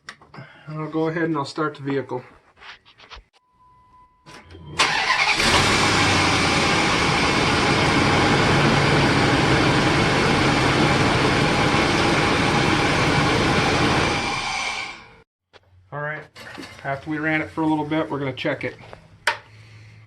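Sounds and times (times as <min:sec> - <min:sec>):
car engine starting and idling: 0:04.8 - 0:15.2.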